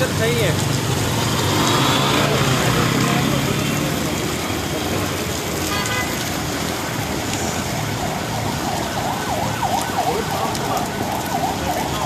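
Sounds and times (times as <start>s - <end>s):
heavy rain hissing: 0.0s - 12.0s
road traffic: 0.0s - 12.0s
emergency vehicle siren wailing: 6.6s - 12.0s.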